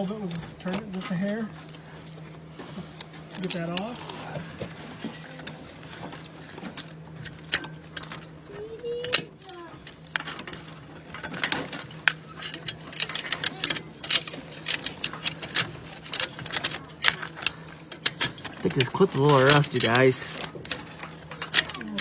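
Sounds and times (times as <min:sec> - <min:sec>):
steady low hum: 0:00.0 - 0:22.0
hand tools clicking on metal: 0:11.2 - 0:22.0.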